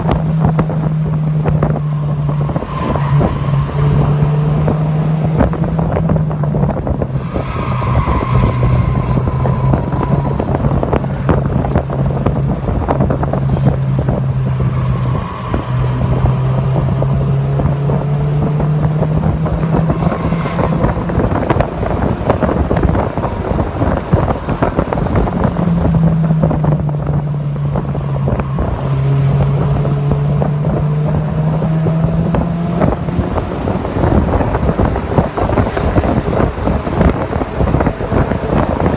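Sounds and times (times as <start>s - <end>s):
car engine running hard: 0.0s - 38.9s
wind buffeting microphone: 0.0s - 38.9s.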